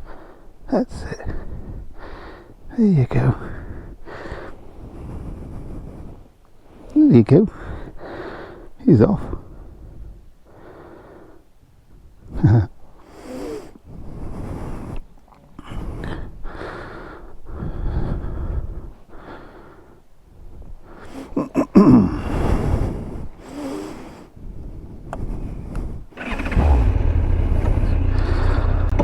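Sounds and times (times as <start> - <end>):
person breathing heavily: 1.2 - 2.7, 3.4 - 6.9, 7.5 - 11.5, 12.9 - 29.0
person grunting: 21.4 - 22.3.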